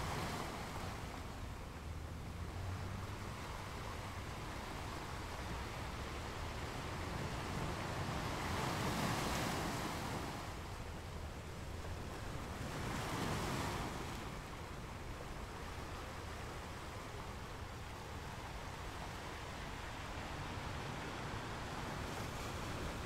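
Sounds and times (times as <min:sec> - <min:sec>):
waves breaking on beach: 0:00.0 - 0:23.0.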